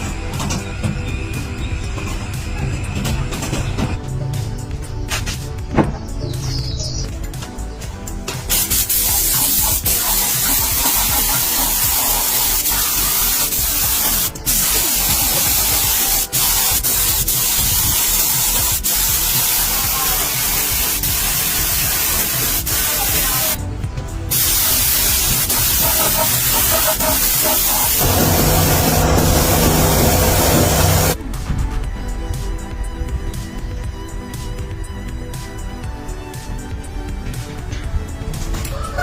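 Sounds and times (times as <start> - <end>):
background music: 0.0 - 39.0
compressed air spraying hiss: 8.5 - 23.6, 24.3 - 31.2.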